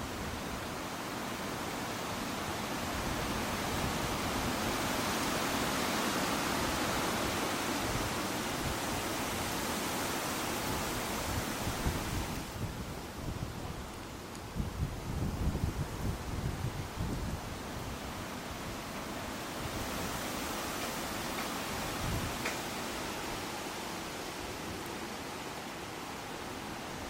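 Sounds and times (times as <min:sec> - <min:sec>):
leaves and branches rustling: 0:00.0 - 0:27.0
strong wind through trees: 0:00.0 - 0:27.0
wind buffeting on microphone: 0:10.7 - 0:18.2.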